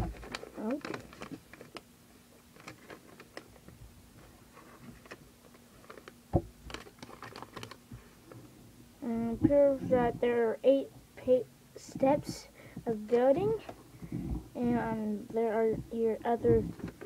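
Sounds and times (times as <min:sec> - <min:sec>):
paper booklet rustling: 0:00.0 - 0:01.8, 0:02.5 - 0:08.1
faint steady hum: 0:00.0 - 0:17.0.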